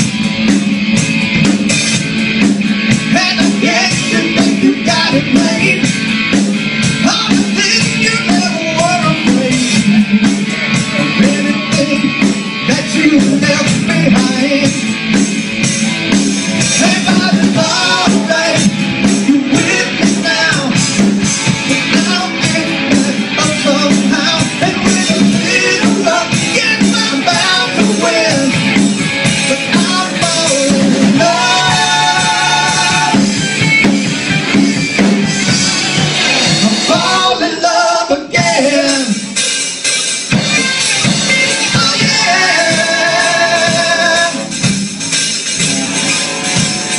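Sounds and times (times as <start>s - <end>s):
rock guitar and drums: 0.0s - 46.9s
person singing: 3.0s - 6.0s, 7.0s - 15.0s, 16.6s - 33.4s, 36.5s - 39.4s, 41.4s - 44.7s.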